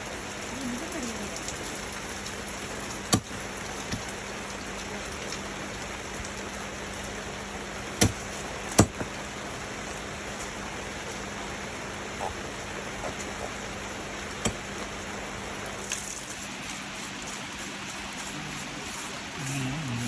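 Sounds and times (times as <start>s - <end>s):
rain hiss: 0.0s - 20.0s
faint low hum: 16.6s - 20.0s.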